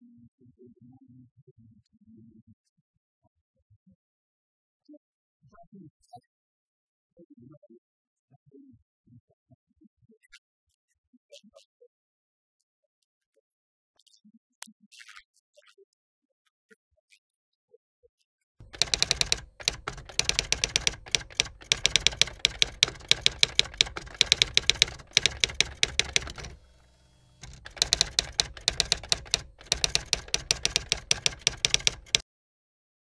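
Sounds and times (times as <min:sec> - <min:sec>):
rapid sharp clicking: 0:18.6 - 0:32.2.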